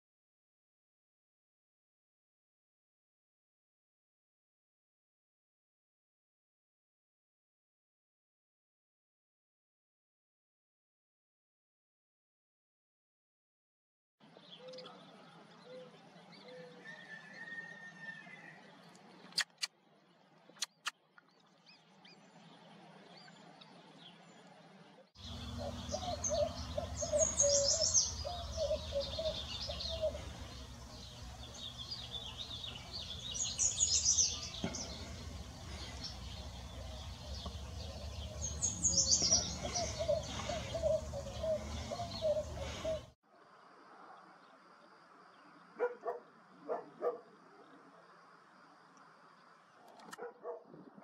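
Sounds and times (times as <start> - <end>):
sharp clicks: 19.3 - 19.7, 20.6 - 21.0
bird sputtering chatter: 19.4 - 19.7.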